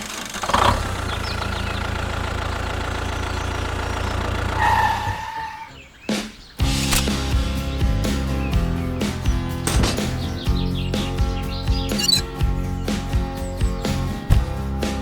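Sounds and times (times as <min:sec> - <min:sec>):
vehicle engine running: 0:00.0 - 0:04.9, 0:06.6 - 0:15.0
music: 0:06.6 - 0:15.0.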